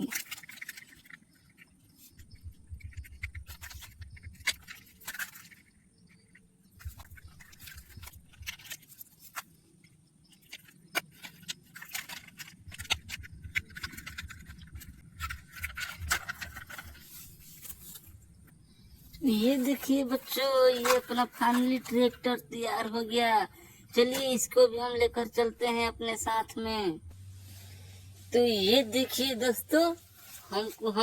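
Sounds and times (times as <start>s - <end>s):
plastic toy parts clicking and rattling: 0.0s - 18.5s, 19.1s - 22.8s.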